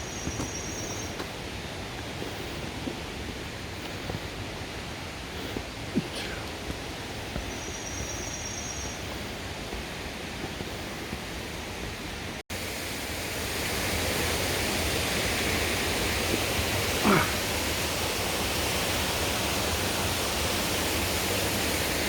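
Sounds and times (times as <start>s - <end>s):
stream water rushing: 9.0s - 22.0s.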